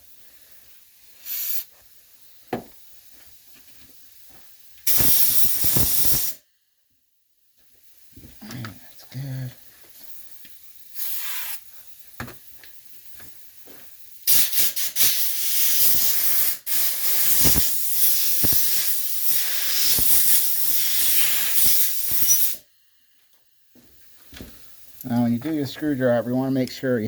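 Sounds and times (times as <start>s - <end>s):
compressed air hissing from blow gun: 0.0s - 2.4s, 4.8s - 6.4s, 10.9s - 11.9s, 14.2s - 22.7s.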